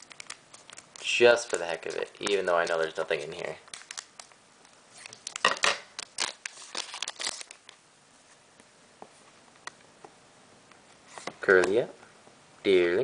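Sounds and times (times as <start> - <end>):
wrapper crinkling and rustling: 0.0 - 7.8.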